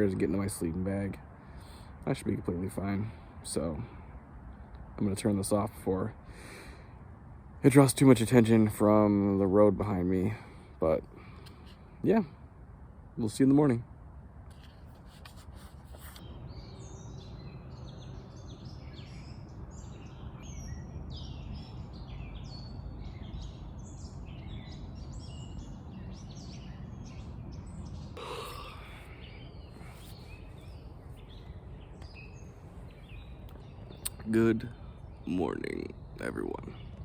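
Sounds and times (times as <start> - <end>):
distant traffic hum: 0.0 - 37.0
small birds chirping: 14.5 - 37.0.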